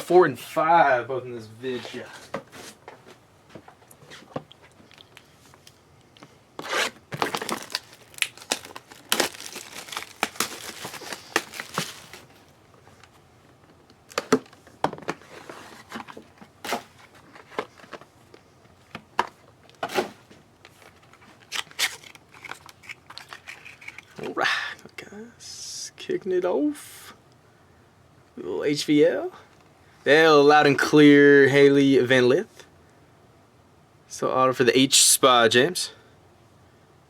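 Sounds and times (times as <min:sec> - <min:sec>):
plastic wrapping tearing: 0:06.6 - 0:12.4, 0:21.4 - 0:24.2
cardboard rustling: 0:06.6 - 0:13.2.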